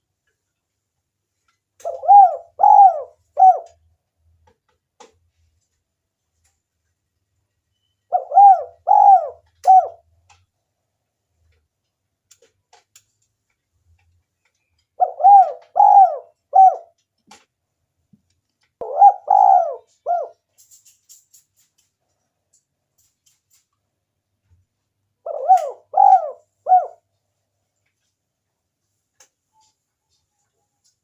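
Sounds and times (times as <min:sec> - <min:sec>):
dove cooing: 0:01.8 - 0:03.8, 0:08.1 - 0:10.0, 0:15.0 - 0:17.0, 0:18.8 - 0:20.4, 0:25.2 - 0:27.0.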